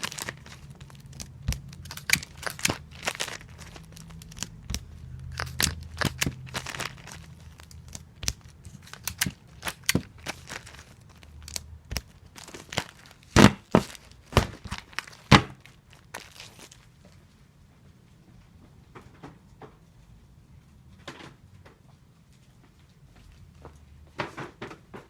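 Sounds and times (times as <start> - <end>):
adhesive tape being pulled and torn: 0.0 - 16.7.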